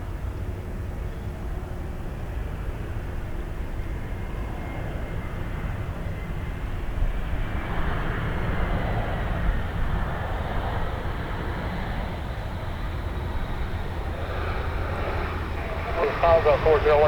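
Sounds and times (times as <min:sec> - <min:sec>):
jet engines rumbling: 0:00.8 - 0:17.0
faint high whine: 0:13.1 - 0:17.0.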